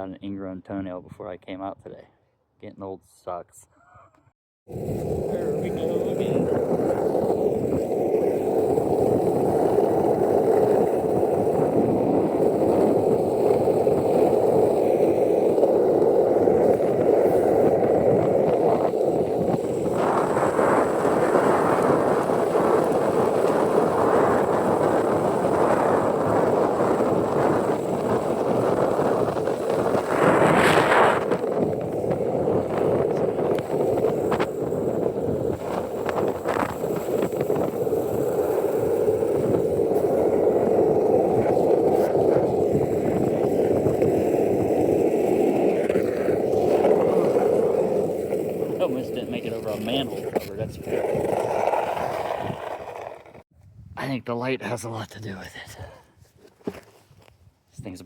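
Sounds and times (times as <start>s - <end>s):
skateboard wheels rolling on asphalt: 4.7s - 53.8s, 56.3s - 58.0s
wind noise on microphone: 4.7s - 54.3s.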